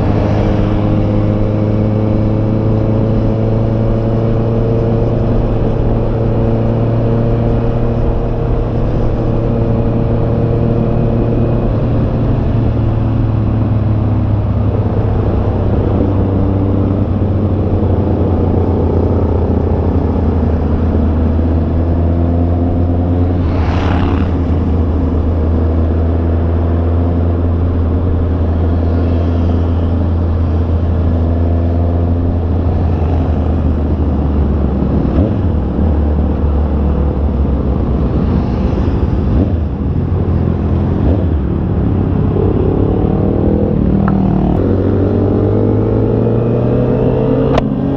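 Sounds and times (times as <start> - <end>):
rushing whoosh: 22.6 - 26.0.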